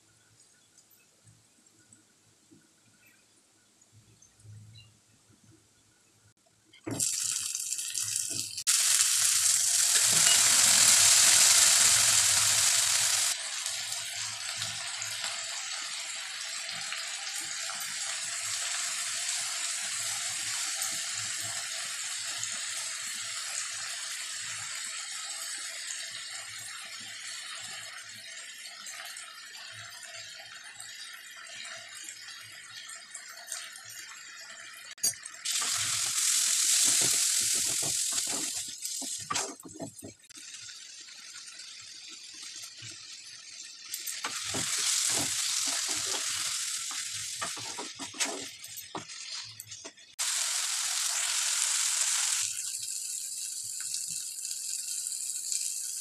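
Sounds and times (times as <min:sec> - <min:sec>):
onions sizzling in hot oil: 0:06.9 - 0:39.6, 0:40.3 - 0:56.0.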